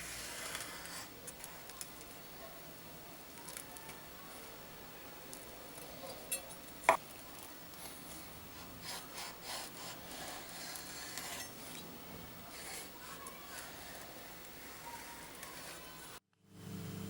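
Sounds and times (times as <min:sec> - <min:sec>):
scraping and rubbing strokes: 0:07.9 - 0:16.2.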